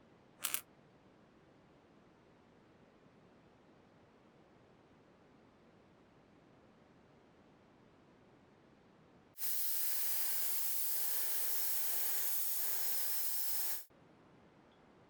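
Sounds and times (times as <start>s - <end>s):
spray hiss from pressurised nozzle: 9.4s - 13.9s.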